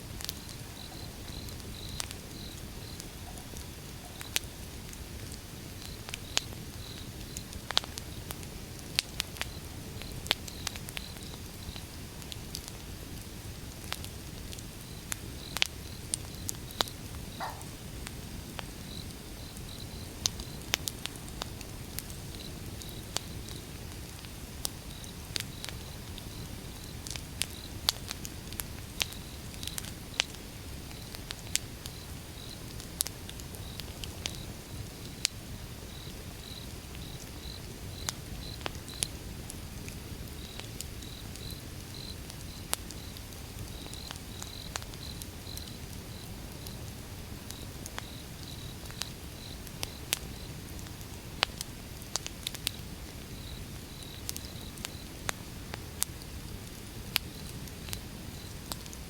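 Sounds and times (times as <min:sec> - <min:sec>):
fire crackles and pops: 0:00.0 - 0:59.0
low noise of flames: 0:00.0 - 0:59.0
faint high chirping: 0:17.3 - 0:17.8.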